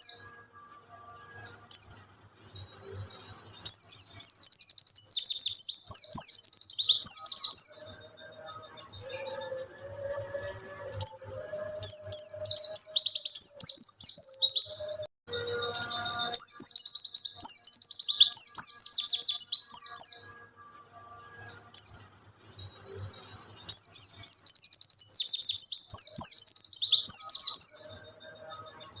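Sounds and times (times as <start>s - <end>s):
bird twittering and warbling: 21.0s - 29.0s.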